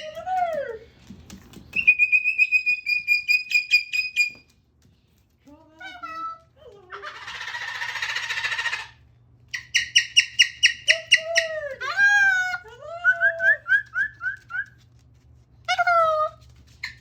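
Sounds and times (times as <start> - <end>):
cockatoo calling: 5.8 - 14.6.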